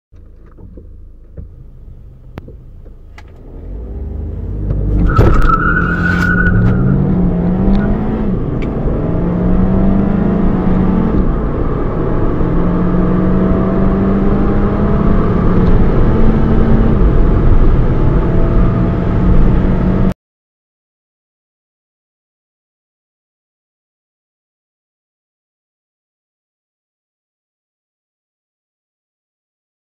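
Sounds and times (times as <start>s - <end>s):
car engine accelerating: 0.2s - 20.2s
tyre squeal: 4.9s - 8.0s.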